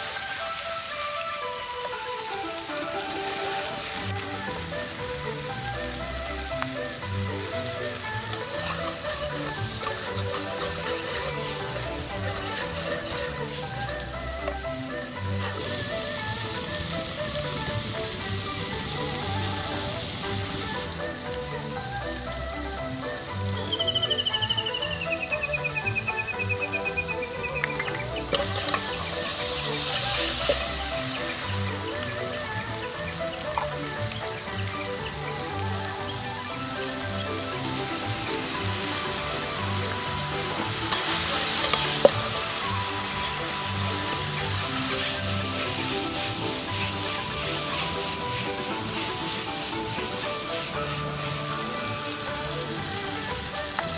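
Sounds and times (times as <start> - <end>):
background music: 0.0 - 53.9
stir-fry sizzling in pan: 0.0 - 53.9
utensil clacking on pan: 8.2 - 13.7, 27.6 - 32.3, 37.5 - 51.1.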